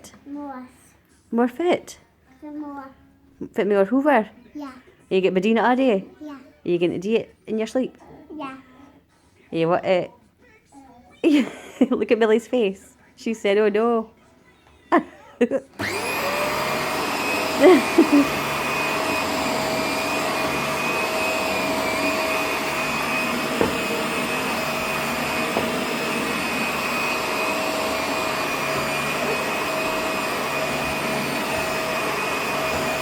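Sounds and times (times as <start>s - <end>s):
vacuum cleaner motor whining: 15.8s - 33.0s.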